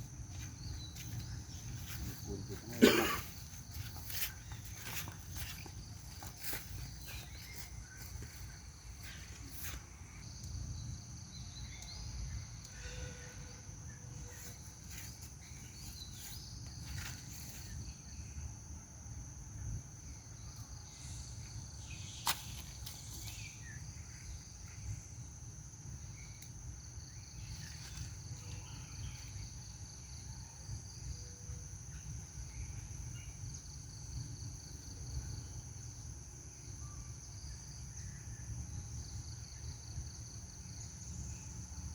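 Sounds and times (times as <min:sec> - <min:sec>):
insects buzzing: 0:00.0 - 0:41.9.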